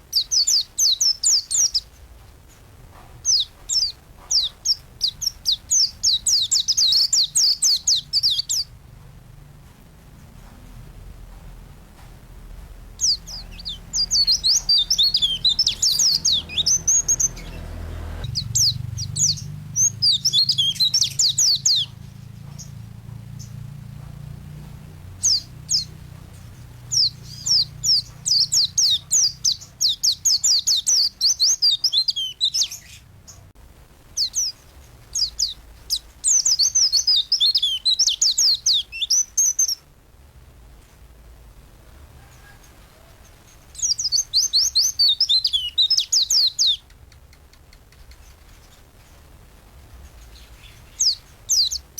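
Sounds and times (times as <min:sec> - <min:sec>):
bird twittering song: 0:00.0 - 0:02.0, 0:03.2 - 0:08.8, 0:12.9 - 0:23.8, 0:24.6 - 0:33.5, 0:34.2 - 0:39.9, 0:43.5 - 0:48.8, 0:50.0 - 0:51.9
faint low hum: 0:00.0 - 0:51.9.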